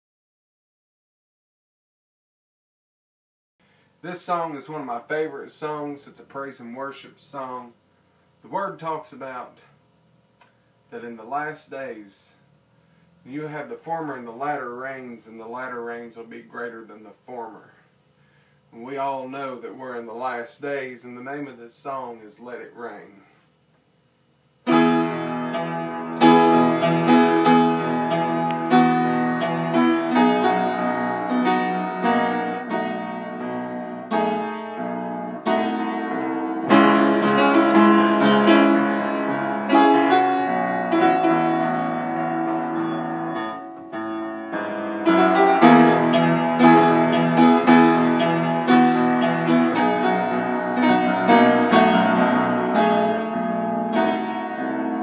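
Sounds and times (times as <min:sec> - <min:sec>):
solo piano chords: 0:24.7 - 0:55.0.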